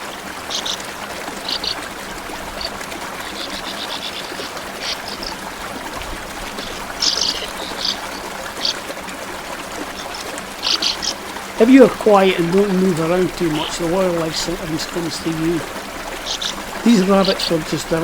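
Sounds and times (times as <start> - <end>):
small stream running: 0.0 - 18.0.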